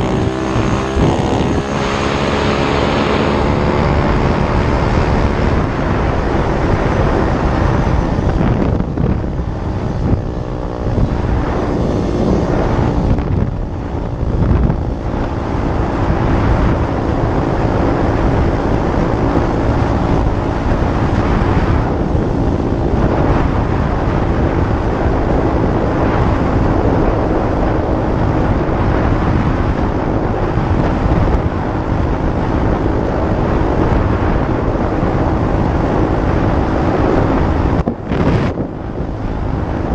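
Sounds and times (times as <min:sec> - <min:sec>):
small motorcycle engine running: 0:00.0 - 0:39.9
wind buffeting microphone: 0:00.0 - 0:39.9.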